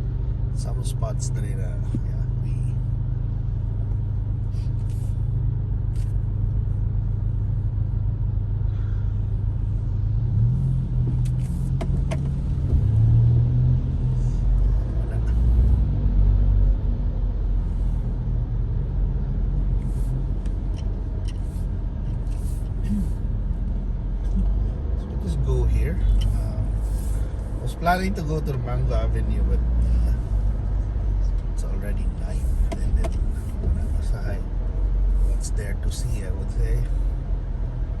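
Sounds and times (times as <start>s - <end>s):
car interior rumble: 0.0s - 38.0s.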